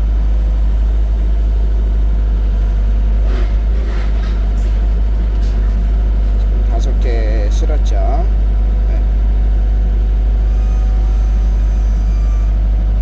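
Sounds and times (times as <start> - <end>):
machine engine droning: 0.0 - 13.0
faint clatter: 3.2 - 7.6.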